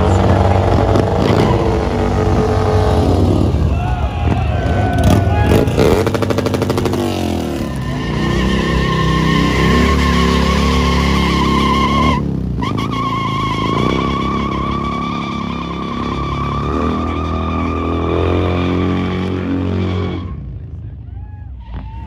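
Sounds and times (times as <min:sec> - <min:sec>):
motorcycle engine high revs: 0:00.0 - 0:20.4
tyre squealing: 0:03.8 - 0:20.4.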